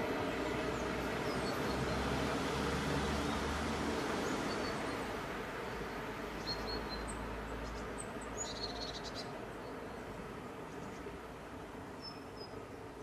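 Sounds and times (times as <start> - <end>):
train rumbling: 0.0 - 6.3.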